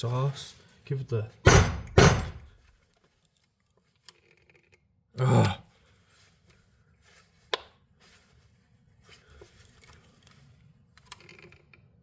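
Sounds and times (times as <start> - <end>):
sharp click: 1.5 - 2.5.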